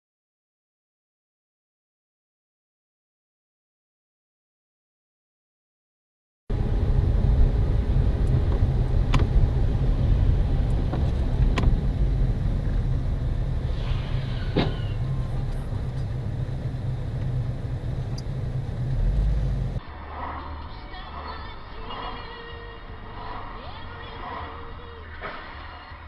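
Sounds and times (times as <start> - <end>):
car engine and road noise: 6.5 - 26.0.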